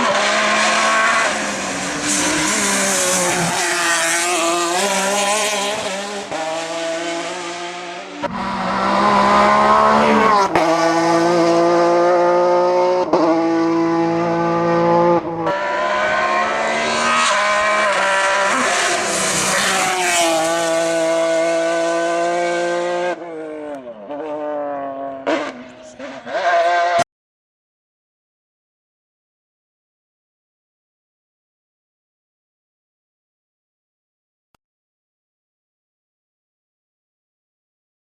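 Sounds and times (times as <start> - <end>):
racing car engine at high revs: 0.0 - 27.0.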